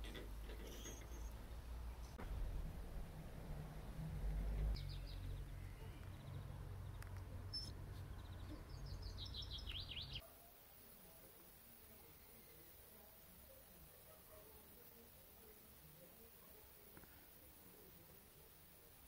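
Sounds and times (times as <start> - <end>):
small birds chirping: 0.0 - 2.2, 4.7 - 19.0
low background rumble: 1.2 - 10.0.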